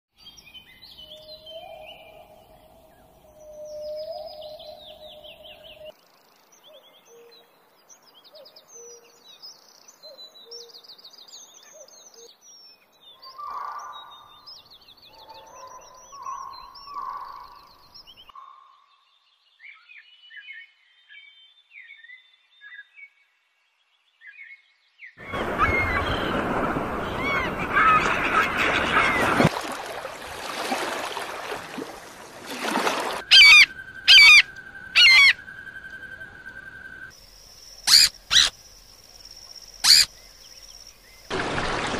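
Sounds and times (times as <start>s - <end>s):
birds chirping and trilling: 0.2s - 29.5s, 32.9s - 41.7s
harsh bird calls: 15.1s - 18.6s, 25.2s - 29.5s, 32.9s - 37.1s, 37.7s - 38.8s, 39.7s - 41.9s
steady whistling tone: 33.2s - 37.2s.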